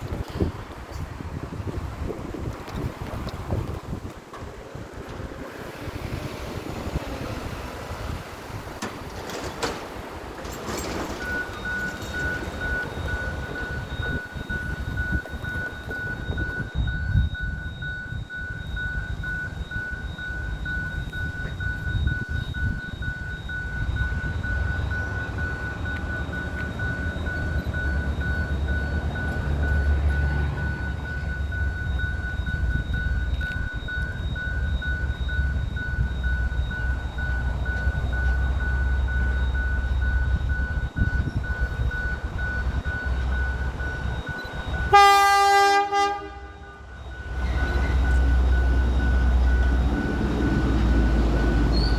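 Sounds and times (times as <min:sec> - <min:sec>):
diesel locomotive rumbling: 0:00.0 - 0:51.9
train horn blast: 0:44.9 - 0:46.9.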